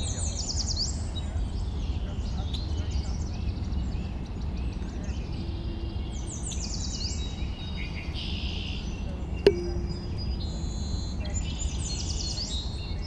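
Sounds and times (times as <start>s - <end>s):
sharp click: 9.5s - 10.3s.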